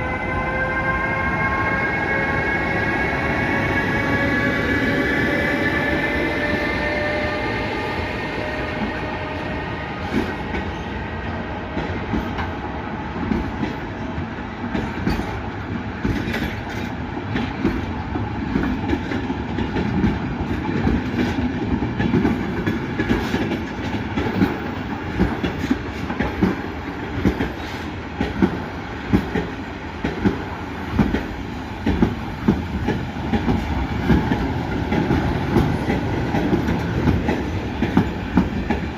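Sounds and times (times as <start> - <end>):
train whine falling in pitch: 0.0 - 10.8
train rumble: 0.0 - 38.9.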